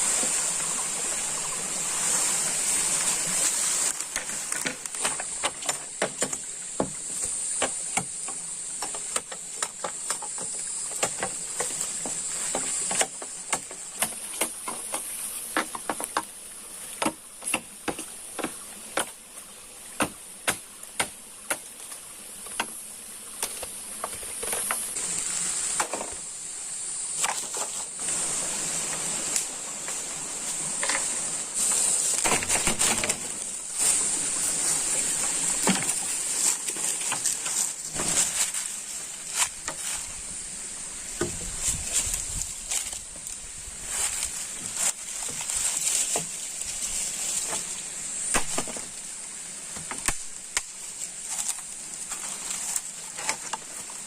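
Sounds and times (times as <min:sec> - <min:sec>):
rustling and shuffling: 0:27.1 - 0:40.5, 0:41.3 - 0:48.0.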